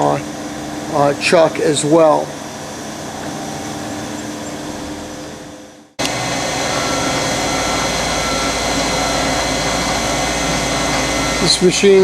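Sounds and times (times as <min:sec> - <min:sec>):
lathe motor humming: 0:00.0 - 0:12.0
shop noise: 0:00.0 - 0:12.0.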